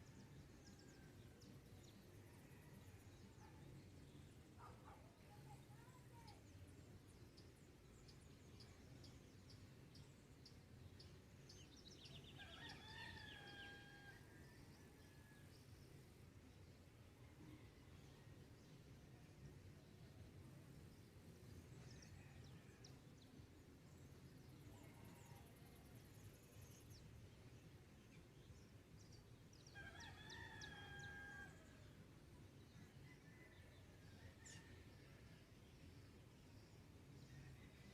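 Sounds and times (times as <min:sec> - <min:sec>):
low rural background: 0:00.0 - 0:37.9
distant rooster crowing: 0:12.3 - 0:14.5, 0:29.8 - 0:31.8.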